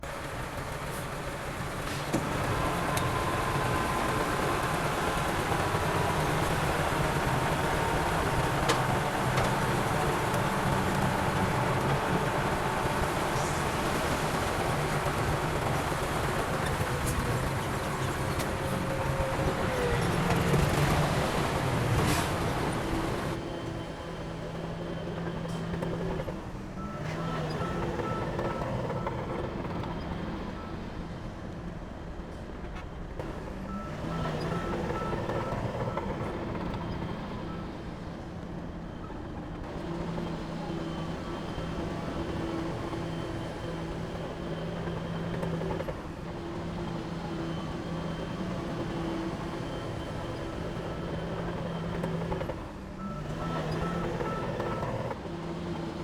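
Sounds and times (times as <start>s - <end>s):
heavy diesel machinery running: 0.0s - 56.0s
reversing alarm beeping: 18.8s - 31.1s, 33.4s - 38.0s, 39.0s - 55.8s.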